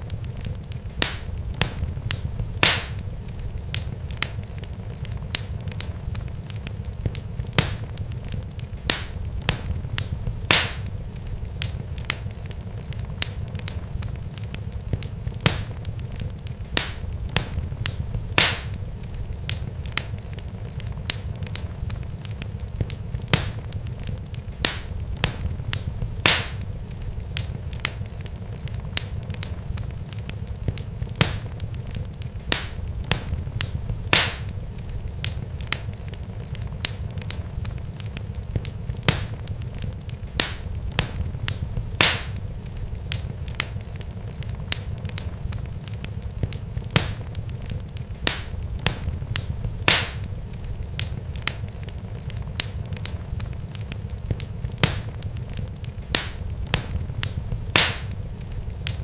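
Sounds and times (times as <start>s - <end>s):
sharp pops and crackles: 0.0s - 59.0s
steady low rumble: 0.0s - 59.0s.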